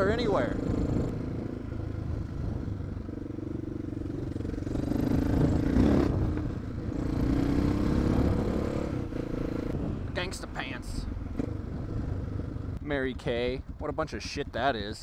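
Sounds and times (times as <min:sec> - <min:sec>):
motorcycle engine running: 0:00.0 - 0:10.0, 0:11.1 - 0:12.8
wind rumble: 0:00.0 - 0:15.0.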